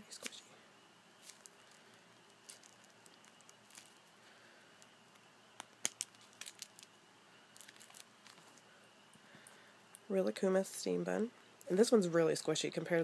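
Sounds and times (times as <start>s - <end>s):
squishy toys handled: 1.2s - 1.7s, 2.3s - 4.1s, 5.6s - 6.9s, 7.6s - 8.6s.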